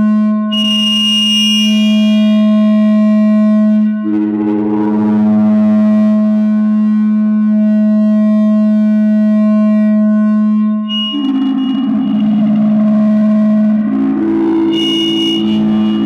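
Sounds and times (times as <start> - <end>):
feedback drone low tone: 0.0 - 16.0
steady higher tones: 0.5 - 7.2, 10.6 - 16.0
grainy wavering noise: 10.9 - 16.0.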